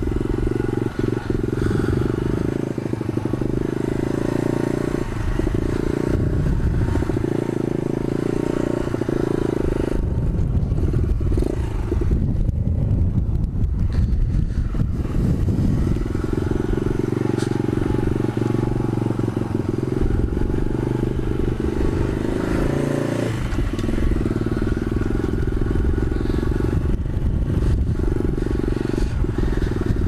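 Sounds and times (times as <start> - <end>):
pit bike engine running: 0.0 - 30.0.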